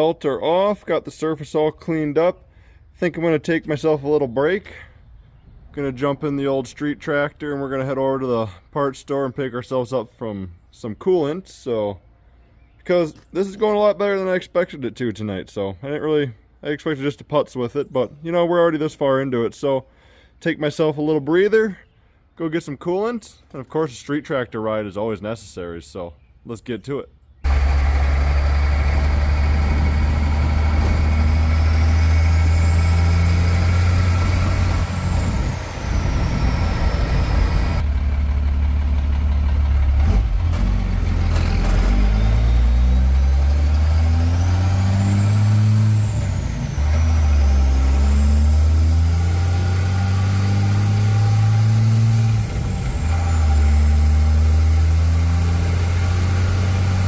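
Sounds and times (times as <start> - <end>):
vehicle engine accelerating: 27.4 - 57.0.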